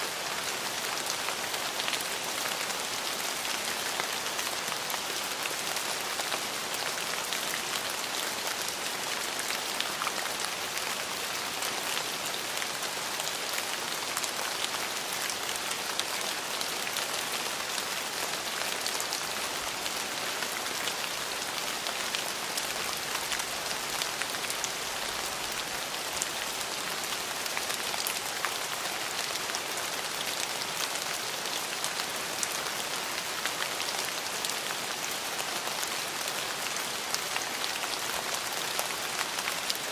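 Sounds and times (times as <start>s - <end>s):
rain patter: 0.0s - 39.9s.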